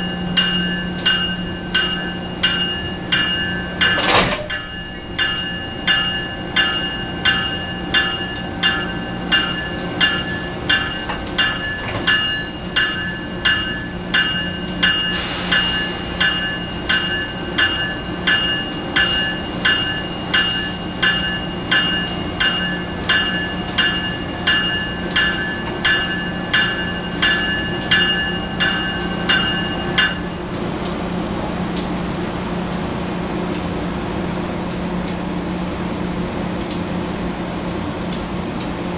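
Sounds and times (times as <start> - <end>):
locomotive warning bell ringing: 0.0 - 30.6.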